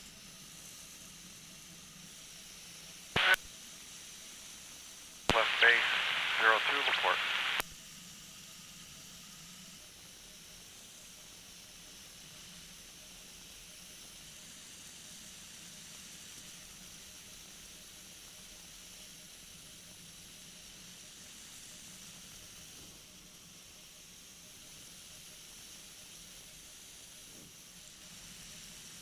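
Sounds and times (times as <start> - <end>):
faint hiss: 0.1 - 7.6, 9.3 - 29.0.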